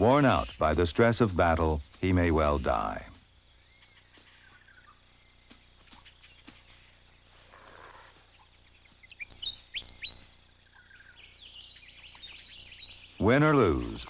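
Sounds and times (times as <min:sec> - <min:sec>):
insect trill: 0:00.0 - 0:14.0
bird whistles and chirps: 0:07.4 - 0:14.0.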